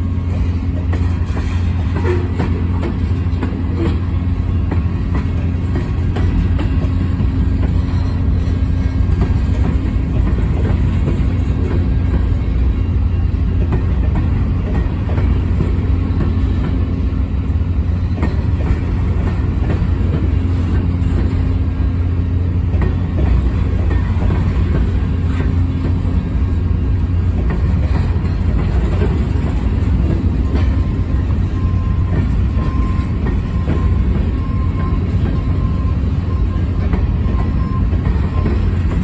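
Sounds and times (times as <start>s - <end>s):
freight train rumbling past: 0.0s - 39.0s
train wheel clicks: 0.2s - 22.0s, 22.7s - 39.0s.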